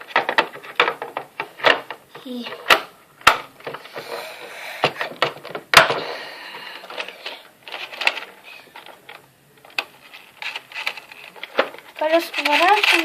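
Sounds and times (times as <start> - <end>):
plastic toy car clicks and rattles: 6.9 - 13.0.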